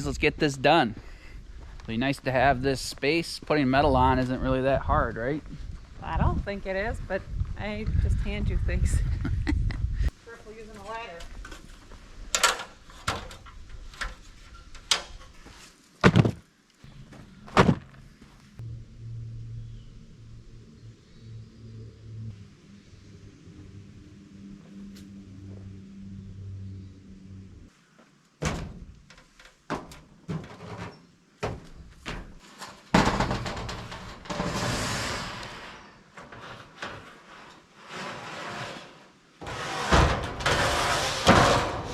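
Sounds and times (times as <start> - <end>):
metal roofing sheets banging: 28.4 - 38.3, 39.4 - 41.9.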